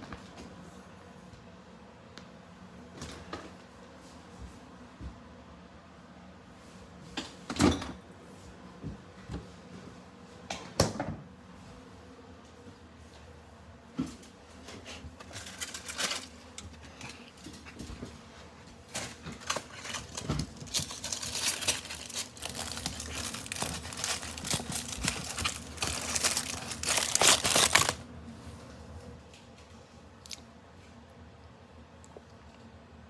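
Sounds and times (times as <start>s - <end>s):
crinkly wrapper crackling: 15.2s - 17.3s, 19.0s - 28.0s.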